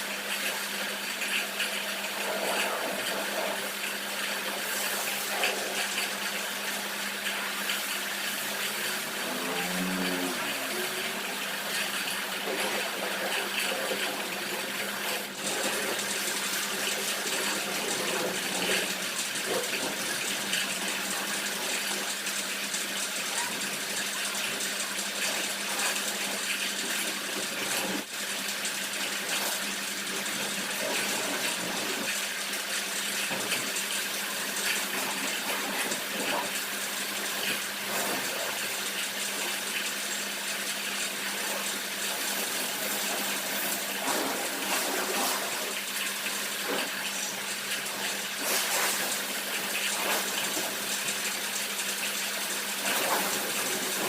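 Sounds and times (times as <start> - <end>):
pressure washer spraying water: 4.4 - 9.1, 42.1 - 51.9.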